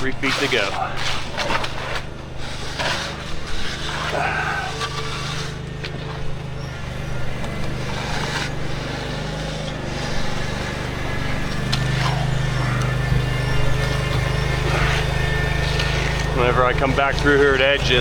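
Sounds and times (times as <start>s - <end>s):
engine running: 0.0s - 18.0s
short scrapes and clicks: 0.2s - 6.3s.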